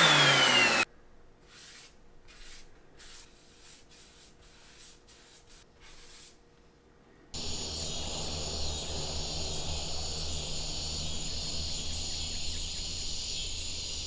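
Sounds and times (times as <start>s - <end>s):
insects trilling: 7.4s - 14.0s
low hum: 7.4s - 14.0s.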